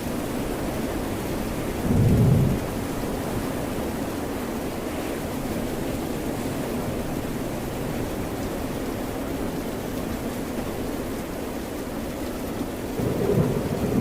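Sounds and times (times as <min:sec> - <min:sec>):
steady rain: 0:00.0 - 0:14.0.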